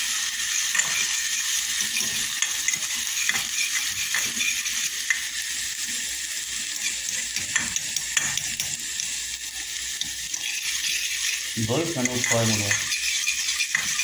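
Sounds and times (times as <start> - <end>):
stirring scraping a metal pot: 0.0 - 5.4, 6.5 - 14.0
onion sizzling in oil: 0.0 - 14.0.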